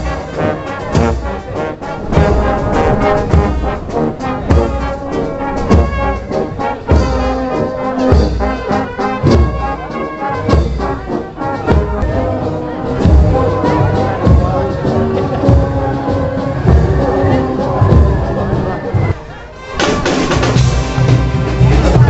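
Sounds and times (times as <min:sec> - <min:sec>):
brass band playing: 0:00.0 - 0:22.0
bass drum beat: 0:01.9 - 0:08.6.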